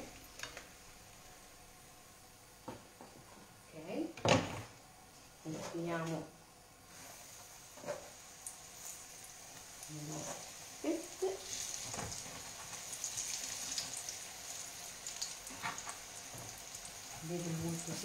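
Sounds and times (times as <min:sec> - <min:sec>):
dough frying in hot oil: 0:04.3 - 0:18.0.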